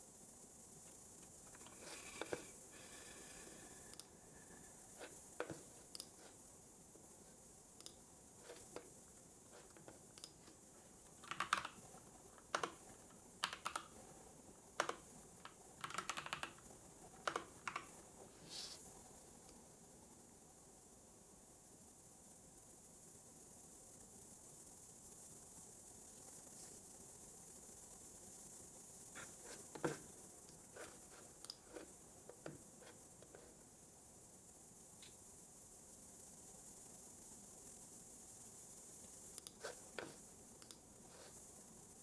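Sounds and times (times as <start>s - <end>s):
faint hiss: 0.0s - 42.0s
keyboard typing: 9.5s - 18.0s.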